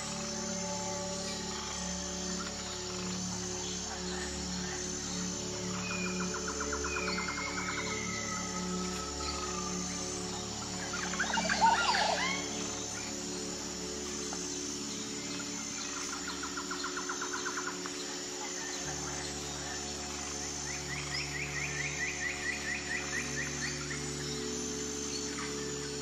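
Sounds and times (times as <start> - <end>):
faint high insect pulsing: 0.0 - 26.0
birds calling: 2.4 - 13.6
bird trilling: 10.9 - 12.6.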